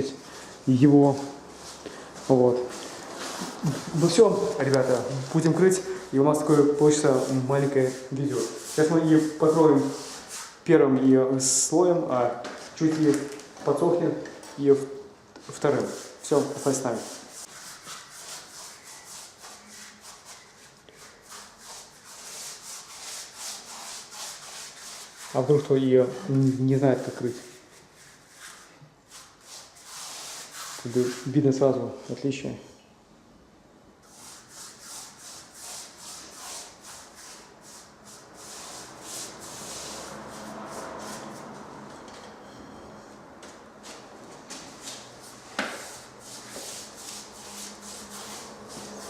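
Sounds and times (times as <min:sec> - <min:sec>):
paintbrush swishing: 0:01.0 - 0:10.7, 0:15.5 - 0:31.4, 0:34.0 - 0:41.8, 0:44.6 - 0:49.0
brush scrubbing wood: 0:01.1 - 0:10.6, 0:15.5 - 0:25.7, 0:34.1 - 0:41.6, 0:44.8 - 0:49.0.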